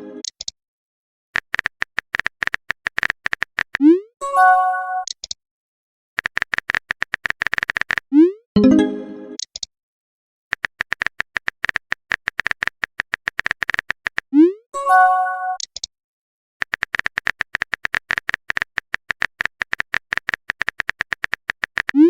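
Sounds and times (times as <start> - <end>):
rapid typing clicks: 1.4 - 3.8, 6.2 - 8.0, 10.5 - 14.3, 16.6 - 22.0
short electronic chime: 8.6 - 9.2.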